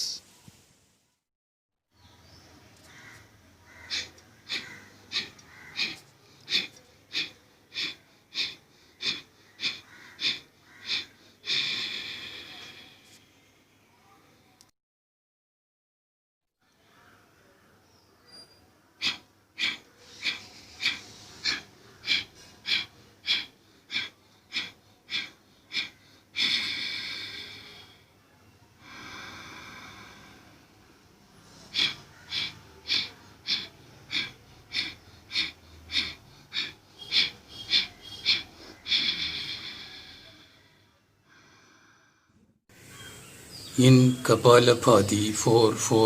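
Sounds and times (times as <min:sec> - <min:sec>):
long breath: 0:02.8 - 0:13.5, 0:18.3 - 0:43.7
forceful nasal exhalations: 0:03.7 - 0:13.2, 0:18.3 - 0:28.2, 0:28.8 - 0:45.6.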